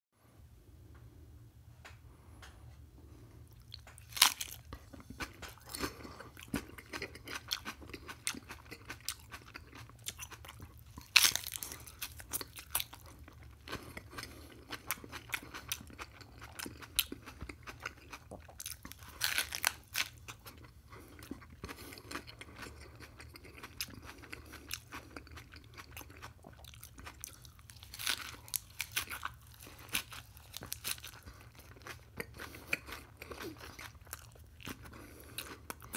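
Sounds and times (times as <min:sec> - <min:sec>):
crunchy chewing: 0:03.5 - 0:35.9
crunching bites: 0:03.6 - 0:20.6.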